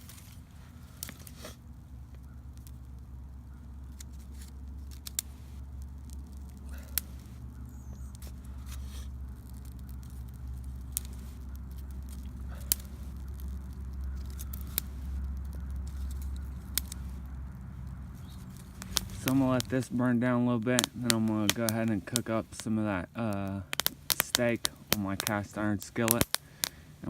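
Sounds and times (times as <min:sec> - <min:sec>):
campfire popping: 0:00.0 - 0:27.0.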